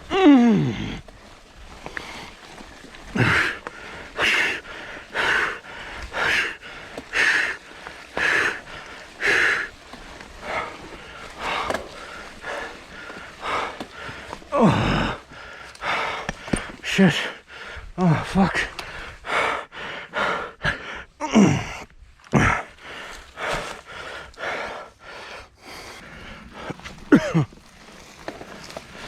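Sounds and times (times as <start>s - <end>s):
person groaning: 0.1s - 1.0s, 14.5s - 15.2s
person panting hard: 0.1s - 27.0s.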